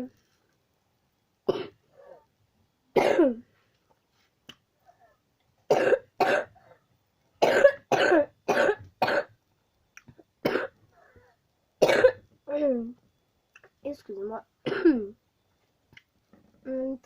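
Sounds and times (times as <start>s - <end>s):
person coughing: 1.5s - 1.8s, 3.0s - 3.4s, 5.7s - 6.6s, 7.4s - 9.3s, 10.4s - 10.8s, 11.8s - 12.2s, 14.7s - 15.1s.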